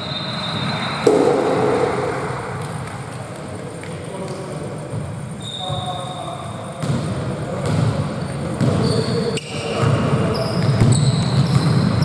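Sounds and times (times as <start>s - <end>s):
sneakers squeaking on floor: 0.0s - 12.0s
basketball bouncing: 1.0s - 4.0s, 6.8s - 8.9s.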